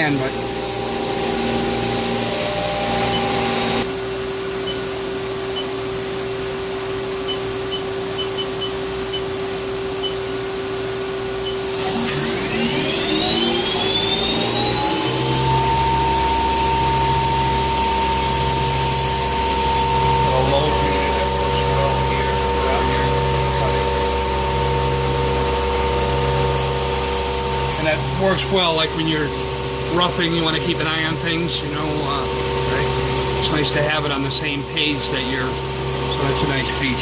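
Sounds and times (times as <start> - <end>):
lathe electric whine and hum: 0.0 - 37.0
motor whine rising in pitch: 0.0 - 37.0
high tone: 11.4 - 27.0.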